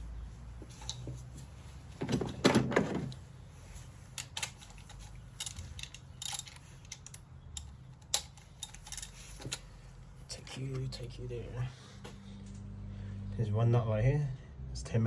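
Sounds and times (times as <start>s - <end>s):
hand tools clattering: 4.0s - 7.2s, 8.0s - 9.7s
metallic clicks and clinks: 4.1s - 9.7s.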